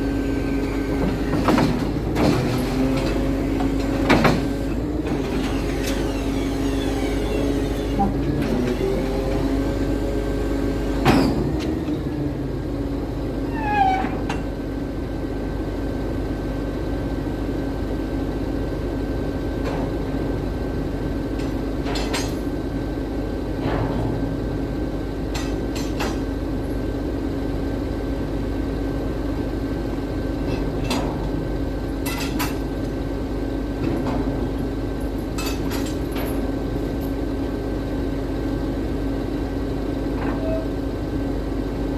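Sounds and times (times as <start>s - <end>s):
short falling squeal: 13.5s - 14.2s.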